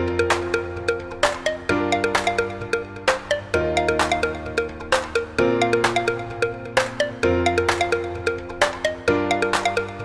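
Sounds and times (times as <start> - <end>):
electronic music with plucked notes: 0.0 - 10.0.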